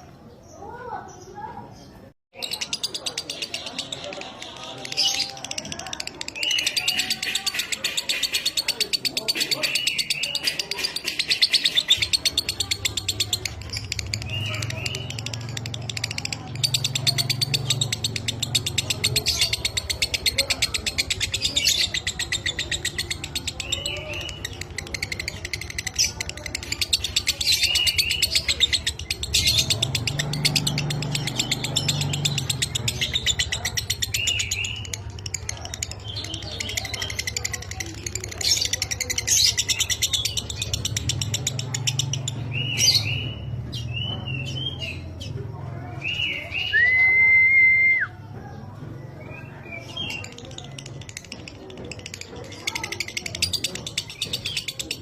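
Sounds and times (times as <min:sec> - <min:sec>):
lovebird chattering trills: 0:02.4 - 0:45.3
loud held bird whistle: 0:46.2 - 0:48.2.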